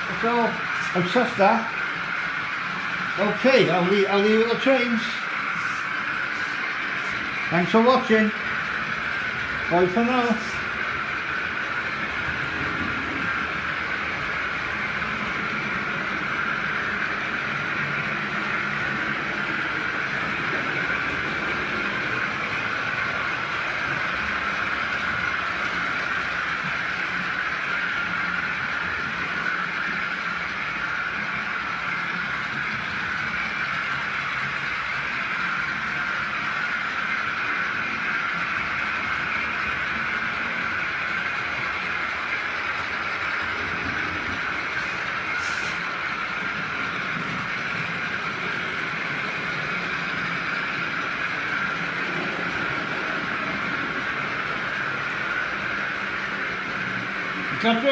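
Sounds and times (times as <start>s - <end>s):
model train running on track: 0.0s - 57.9s.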